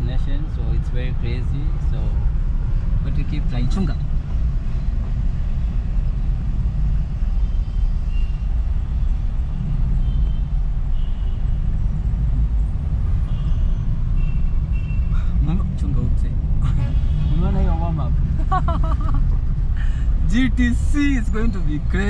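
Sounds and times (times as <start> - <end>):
car driving rumble: 0.0 - 22.0.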